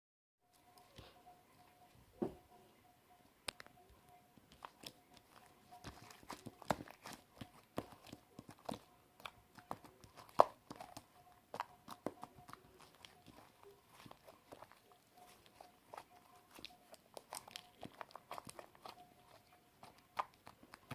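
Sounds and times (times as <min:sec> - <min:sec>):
slime squished by hand: 0:04.5 - 0:20.9.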